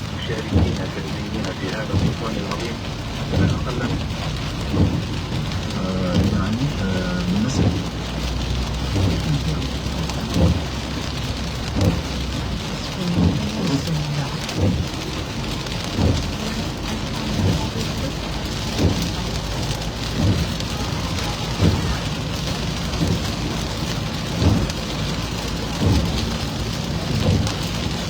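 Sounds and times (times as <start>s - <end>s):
rain on a moving car: 0.0s - 28.0s.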